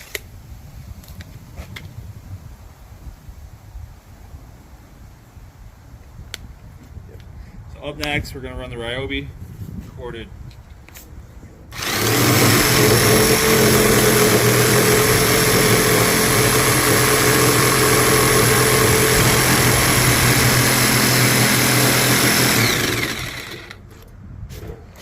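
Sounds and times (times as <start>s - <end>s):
jigsaw cutting decking: 11.7s - 24.0s.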